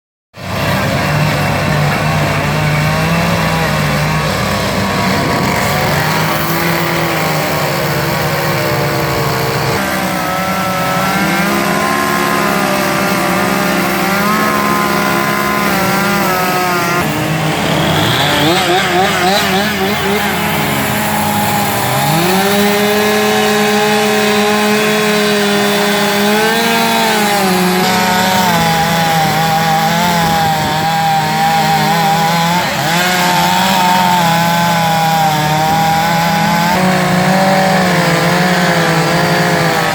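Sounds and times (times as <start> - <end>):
chainsaws revving: 0.4 - 39.9.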